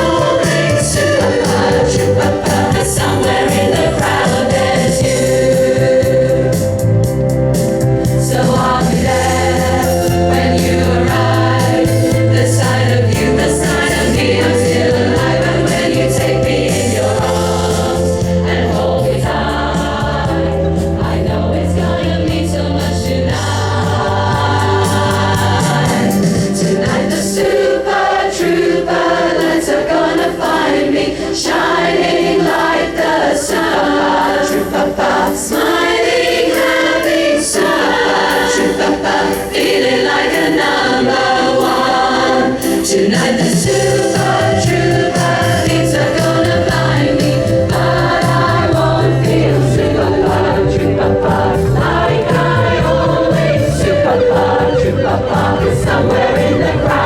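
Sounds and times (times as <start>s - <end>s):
choir singing: 0.0s - 57.0s
sustained low chords: 43.7s - 57.0s.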